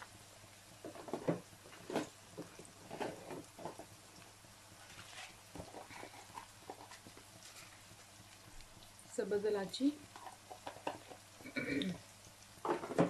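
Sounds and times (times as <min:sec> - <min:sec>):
onions frying in hot oil: 0:00.0 - 0:13.0.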